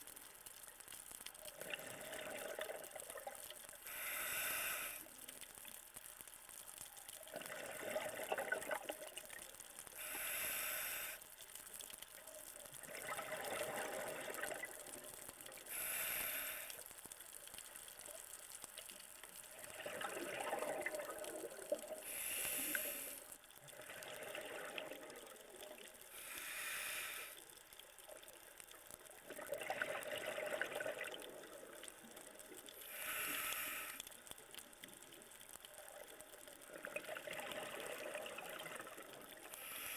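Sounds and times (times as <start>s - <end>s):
diver inhaling through regulator: 3.8s - 5.1s, 10.0s - 11.2s, 15.7s - 16.8s, 22.0s - 23.3s, 26.1s - 27.4s, 32.8s - 34.1s, 39.5s - 39.9s
exhaled bubbles rushing: 19.7s - 21.7s.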